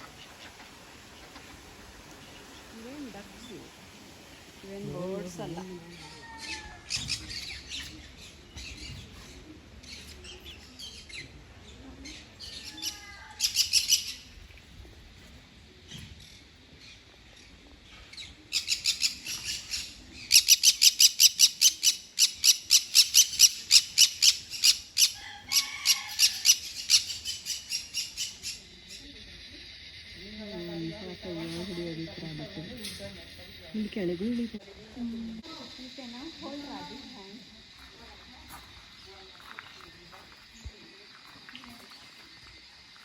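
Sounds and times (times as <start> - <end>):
birds chirping: 0.0 - 14.4.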